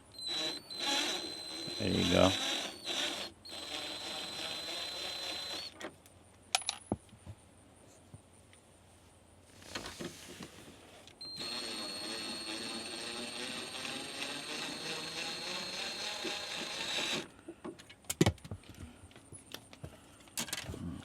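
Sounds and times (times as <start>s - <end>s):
power drill whining: 0.0s - 5.8s, 11.2s - 17.3s.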